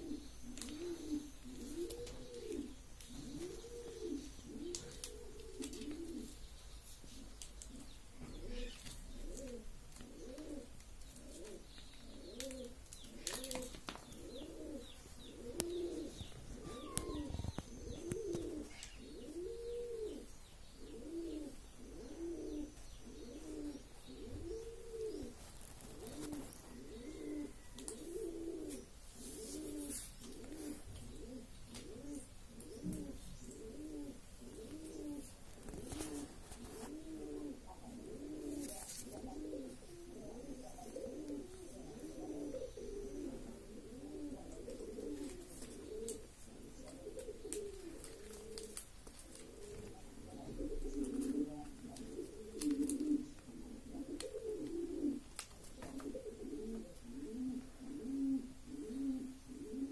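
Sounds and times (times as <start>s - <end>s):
bird cooing: 0.0s - 59.9s
faint clicks: 27.8s - 28.0s.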